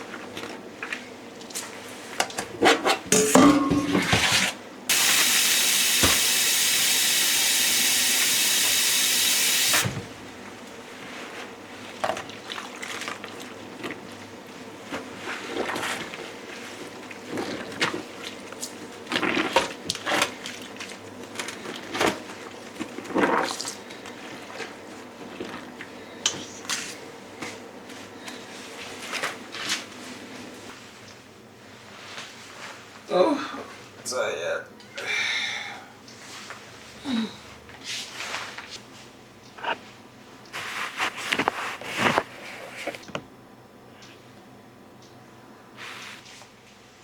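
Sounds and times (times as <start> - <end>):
dishes clattering: 2.5 - 4.5
dishes and utensils clinking: 2.6 - 4.5
kitchen tap running hard: 4.9 - 10.0.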